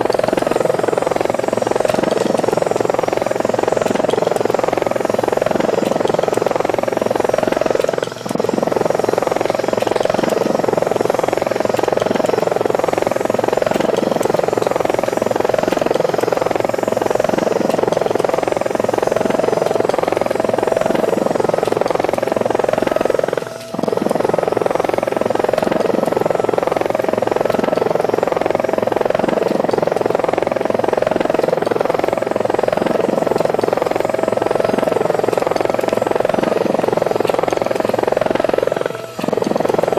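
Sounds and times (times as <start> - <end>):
electric helicopter rotor buzz: 0.0 - 39.9.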